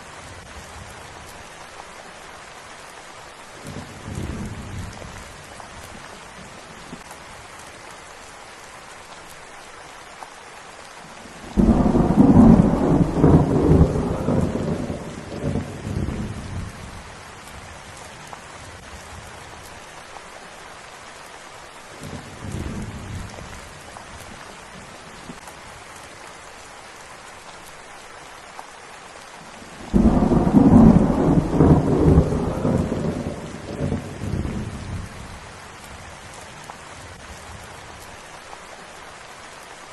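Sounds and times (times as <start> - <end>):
steady rain: 0.0 - 39.9
thunder rumbling: 11.5 - 17.0, 29.8 - 35.6.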